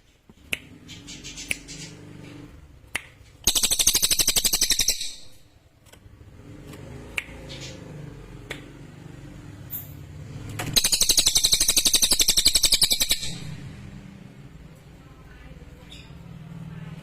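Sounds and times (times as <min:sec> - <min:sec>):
songbird trilling: 0:03.4 - 0:05.4, 0:10.8 - 0:13.6.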